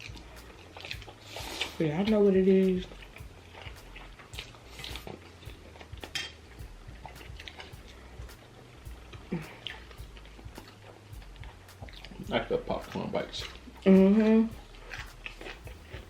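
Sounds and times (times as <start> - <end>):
cutlery clinking on plates: 6.0 - 6.4
person humming low: 9.2 - 10.1.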